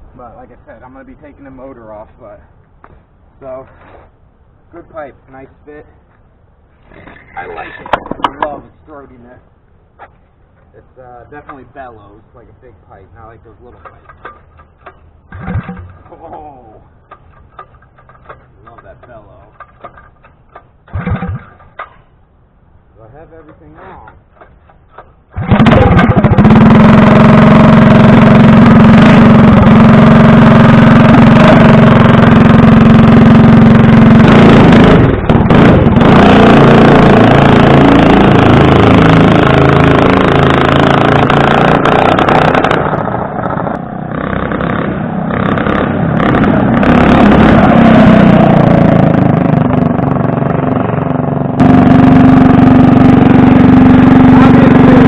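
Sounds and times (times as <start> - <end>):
mini bike engine bellowing: 13.7 - 22.1, 23.8 - 55.0.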